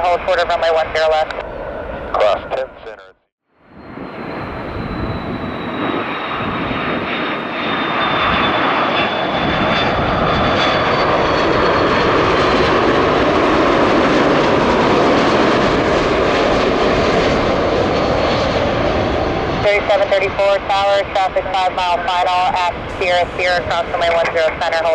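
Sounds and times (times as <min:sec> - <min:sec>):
jet airliner roar: 0:00.0 - 0:24.9
high engine whine dropping in pitch: 0:03.7 - 0:12.1.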